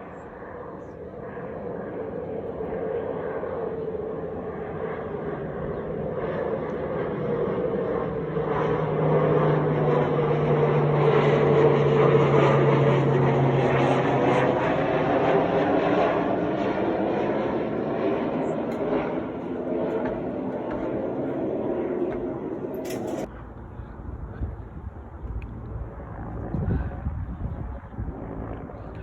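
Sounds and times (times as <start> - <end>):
propeller airplane engine droning: 0.0 - 29.0.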